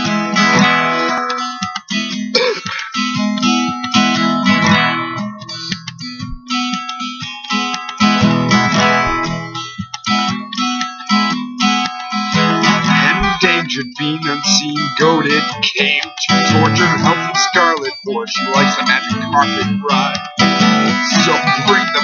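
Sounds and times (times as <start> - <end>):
acoustic guitar strumming chords: 0.0 - 22.0.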